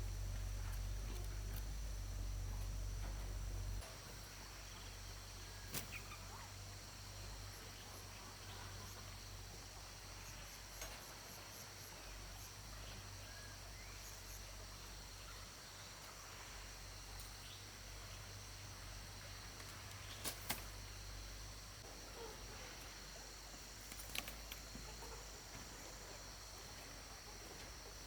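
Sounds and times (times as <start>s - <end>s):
low hum: 0.0s - 5.6s
insect chirring: 0.0s - 15.4s.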